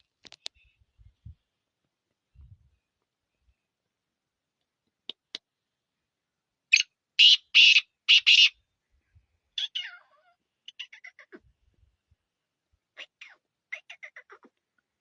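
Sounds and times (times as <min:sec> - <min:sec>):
parrot screeching: 0:07.2 - 0:08.5, 0:09.6 - 0:11.4.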